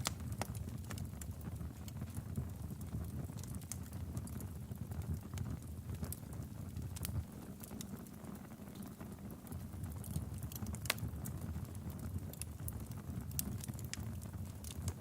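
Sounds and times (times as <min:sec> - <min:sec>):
logs crackling in a fireplace: 0:00.0 - 0:15.0.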